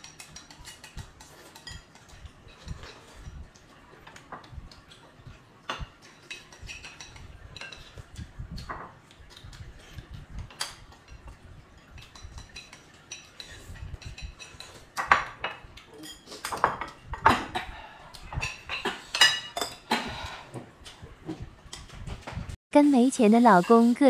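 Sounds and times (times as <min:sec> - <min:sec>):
utensils clinking against dishes: 0:00.0 - 0:21.0, 0:22.8 - 0:24.0
dishes clattering: 0:04.1 - 0:09.0, 0:09.8 - 0:22.0.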